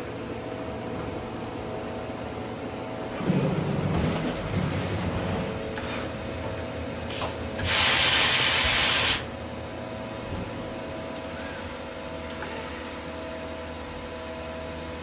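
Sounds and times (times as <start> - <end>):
loud spraying hiss: 7.1 - 9.3.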